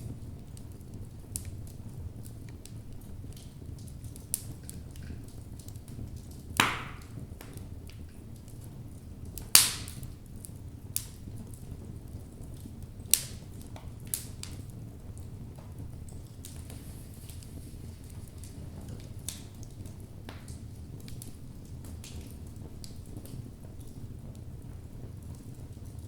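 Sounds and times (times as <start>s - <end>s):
fire crackling: 0.0s - 26.0s
fire rumbling: 0.0s - 26.0s
wood popping: 6.6s - 7.6s.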